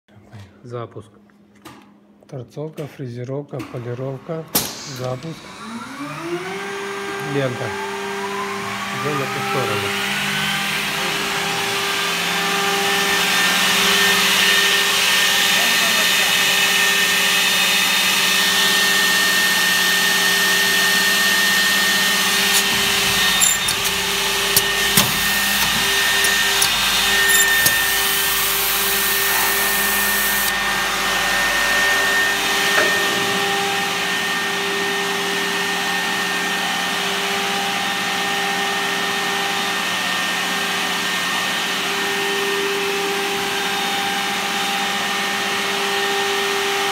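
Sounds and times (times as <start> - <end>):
machine motor hum and hiss: 4.6 - 34.9
sharp clicks and knocks: 22.2 - 30.5.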